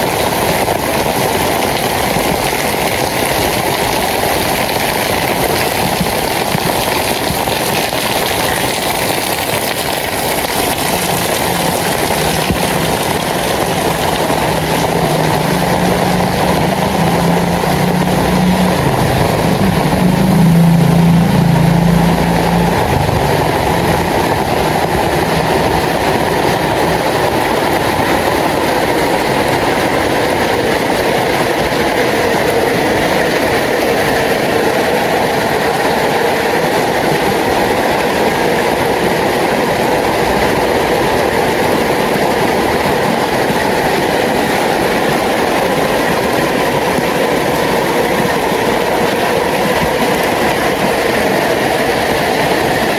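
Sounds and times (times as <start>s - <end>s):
rain falling on street: 0.0s - 52.9s
passing vehicle hum: 10.2s - 35.9s.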